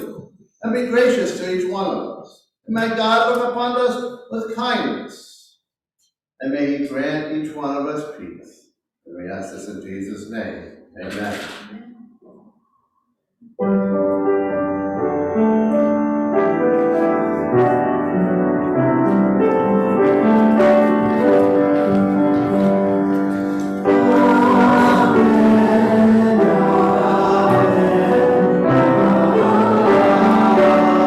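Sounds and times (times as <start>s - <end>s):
piano music with held notes: 13.6s - 31.0s.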